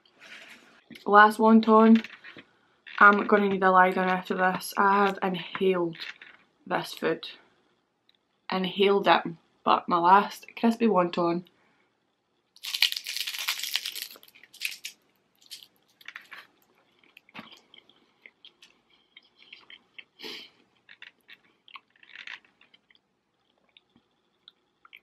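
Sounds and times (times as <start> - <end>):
crunchy bite into fried food: 12.6 - 16.4
chewing with crunches: 12.6 - 25.0.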